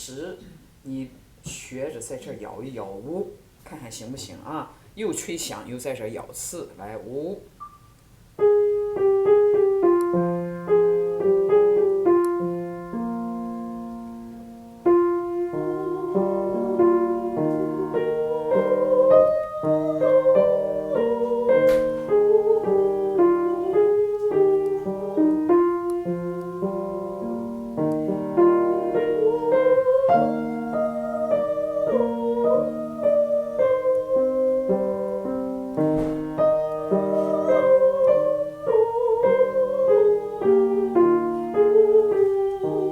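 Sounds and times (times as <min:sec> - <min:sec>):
piano chords: 0:07.6 - 0:42.9
person singing sustained vowel: 0:15.0 - 0:35.8, 0:36.4 - 0:42.9.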